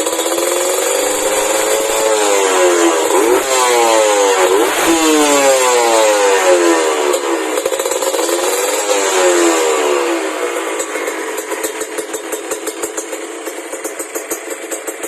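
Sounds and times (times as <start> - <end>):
motorcycle throttle blips: 0.6 - 7.6.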